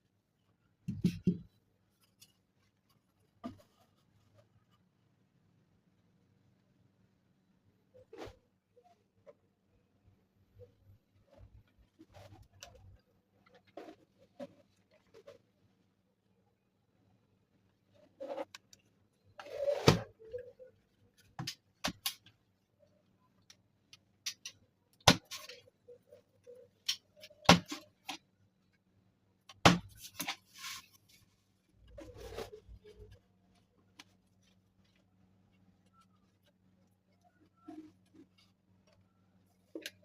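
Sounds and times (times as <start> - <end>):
rustling handling noise: 1.0 - 5.2, 29.8 - 40.0.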